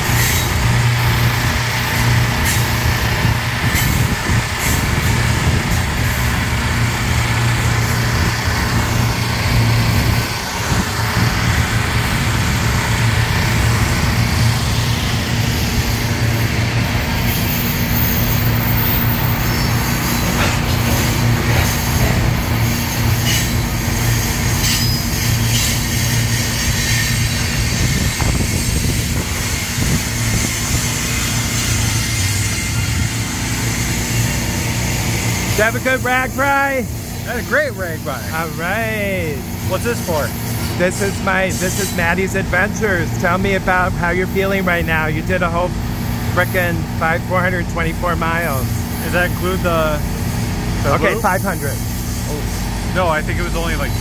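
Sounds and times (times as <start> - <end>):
freight train rumbling past: 0.0 - 54.0
wheel and coupling clanks: 19.6 - 22.6.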